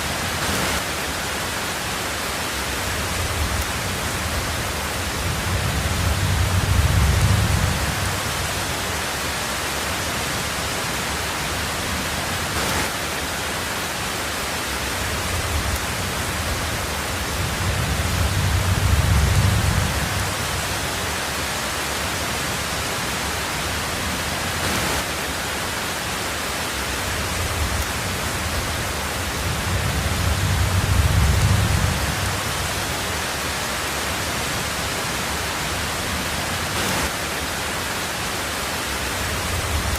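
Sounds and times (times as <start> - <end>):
heavy rain on a tin roof: 0.0 - 39.9
thunder rumbling: 2.8 - 9.0, 15.0 - 21.1, 27.0 - 33.1.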